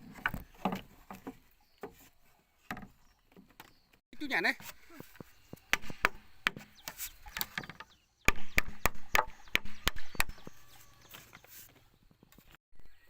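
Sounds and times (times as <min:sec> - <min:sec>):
axe chopping wood: 0:04.6 - 0:10.6.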